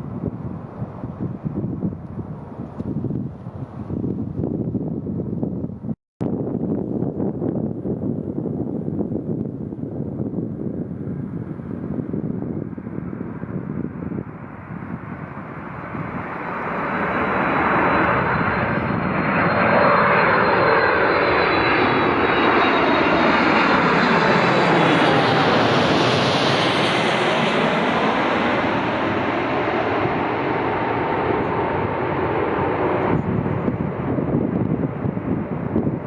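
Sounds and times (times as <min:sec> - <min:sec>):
jet airliner engine noise: 0:00.0 - 0:36.0
thin high whine: 0:15.4 - 0:23.2.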